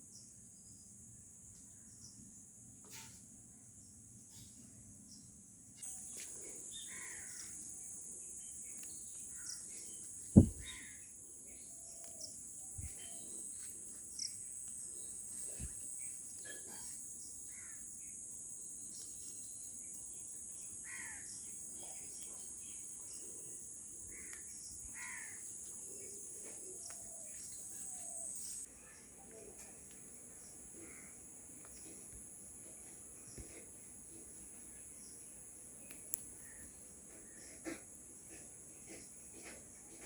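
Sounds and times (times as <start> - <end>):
high insect drone: 5.8 - 28.7
crows cawing: 6.9 - 7.5, 20.8 - 21.3, 24.1 - 25.4
sharp knocks: 10.4 - 10.7.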